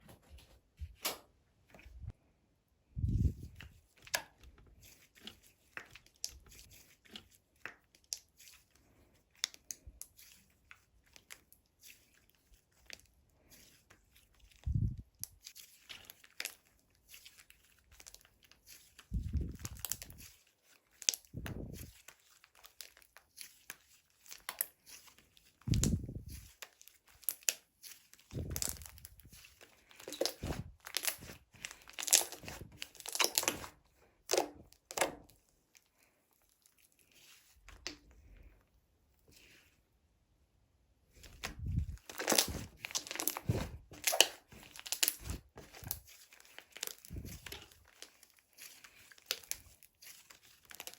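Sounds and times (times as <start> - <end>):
slime crackling and popping: 28.3 - 33.7, 41.2 - 50.9.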